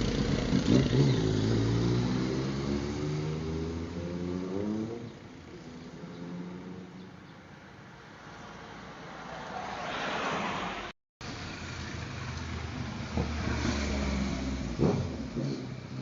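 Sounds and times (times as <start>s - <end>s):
vehicle rushing past: 0.0s - 5.1s, 9.0s - 15.8s.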